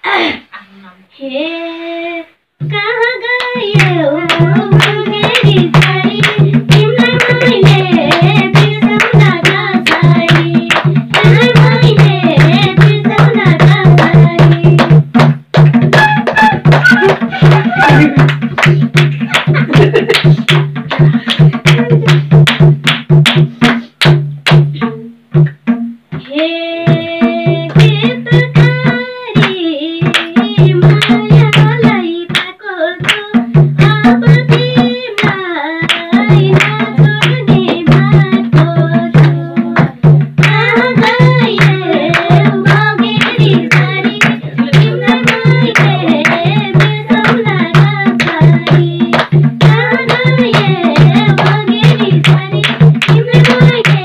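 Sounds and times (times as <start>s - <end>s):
women singing folk song: 1.2s - 15.0s, 26.2s - 54.0s
hand drum folk rhythm: 2.6s - 54.0s.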